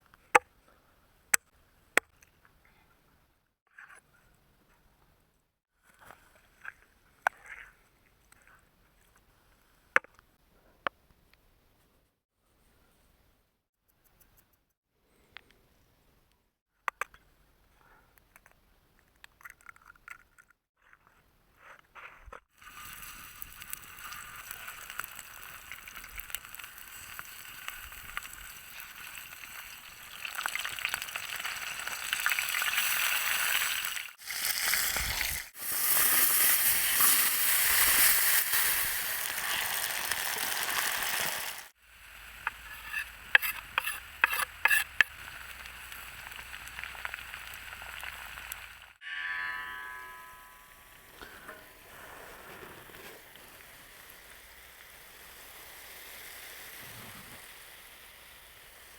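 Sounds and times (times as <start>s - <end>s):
food sizzling in a pan: 22.6s - 49.0s, 53.2s - 58.9s.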